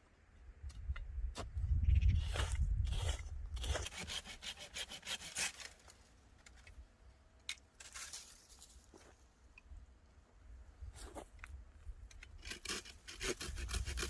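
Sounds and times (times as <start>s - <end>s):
hand saw strokes: 2.2s - 5.9s, 12.4s - 14.0s.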